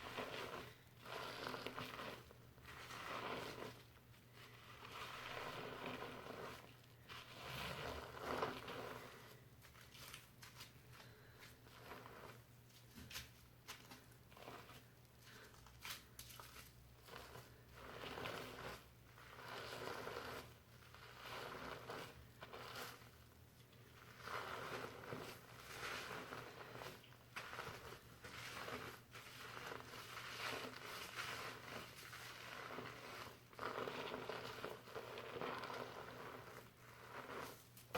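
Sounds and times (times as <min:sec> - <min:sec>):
fingers scrubbing shampoo lather: 0:00.0 - 0:10.2, 0:17.0 - 0:23.2, 0:23.9 - 0:37.6.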